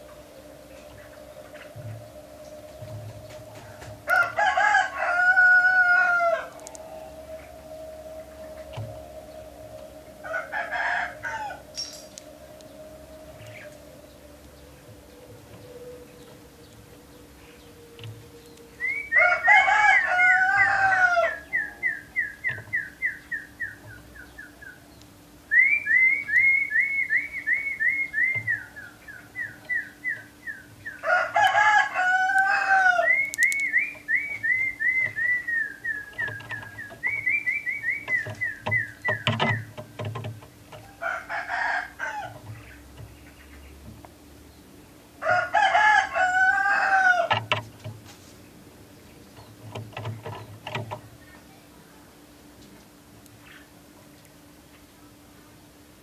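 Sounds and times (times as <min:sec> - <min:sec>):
rooster crowing: 0:00.0 - 0:22.4, 0:30.8 - 0:38.8, 0:40.8 - 0:42.5, 0:45.2 - 0:47.6
songbird trilling chirps: 0:00.0 - 0:45.2, 0:46.2 - 0:55.7.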